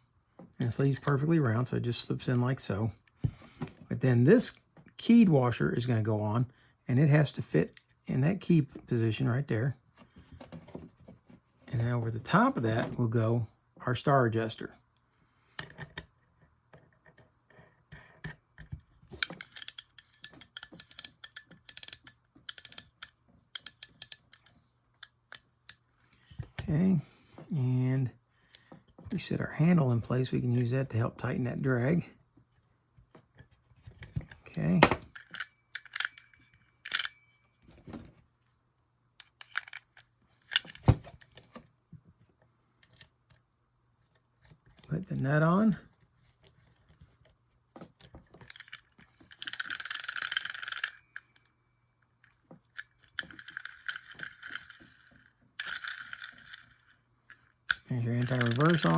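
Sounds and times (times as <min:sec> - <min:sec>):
fishing reel parts clicking: 0:19.2 - 0:24.5, 0:35.1 - 0:37.2, 0:48.5 - 0:51.4, 0:52.8 - 0:58.9.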